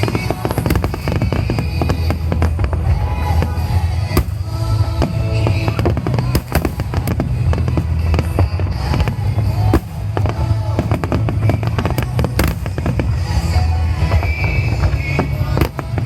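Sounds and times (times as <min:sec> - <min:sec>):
fireworks bangs and crackles: 0:00.0 - 0:16.0
low rumble: 0:00.0 - 0:16.0
music playing: 0:00.0 - 0:16.0.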